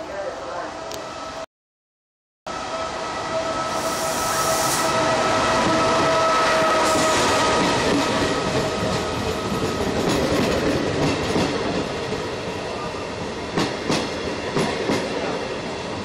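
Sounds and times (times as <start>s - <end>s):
train wheels rumbling on rails: 3.7s - 16.0s.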